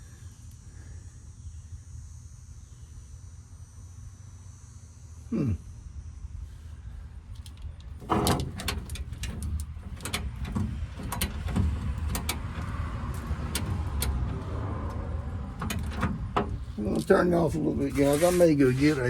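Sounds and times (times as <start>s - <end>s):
low steady rumble: 5.8s - 19.0s
metal clicks and clanks: 7.4s - 17.2s
metal creaking: 7.4s - 19.0s.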